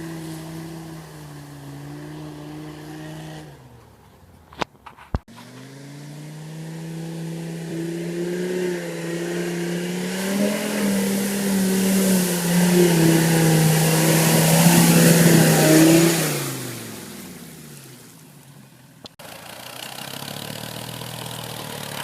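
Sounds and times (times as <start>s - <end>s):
diesel engine running: 5.3s - 17.8s, 19.1s - 22.0s.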